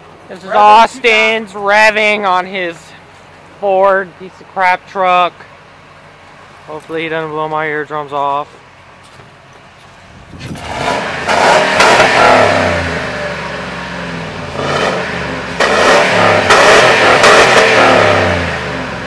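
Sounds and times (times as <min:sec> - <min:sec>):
truck engine revving: 0:10.0 - 0:19.0.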